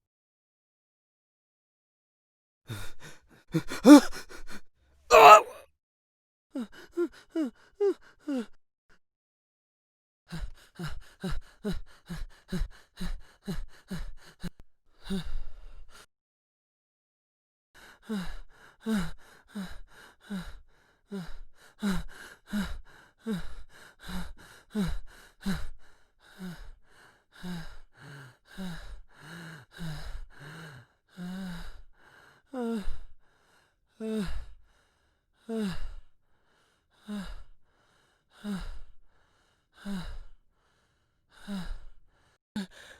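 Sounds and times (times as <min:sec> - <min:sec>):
person panting heavily: 0:02.7 - 0:04.5, 0:05.1 - 0:05.6, 0:36.4 - 0:42.9.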